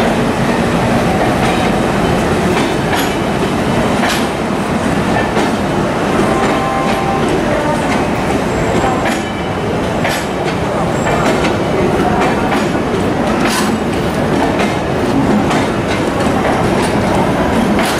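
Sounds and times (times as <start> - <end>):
rumble of wheels on rail: 0.0 - 17.9
wheels clicking over rail joints: 2.5 - 3.4, 9.0 - 17.9.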